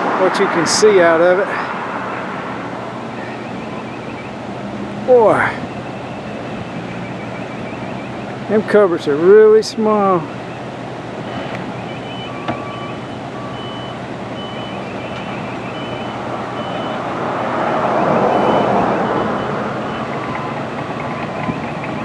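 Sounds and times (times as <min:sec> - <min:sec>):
birds chirping and trilling: 0:03.0 - 0:08.7, 0:11.7 - 0:16.8.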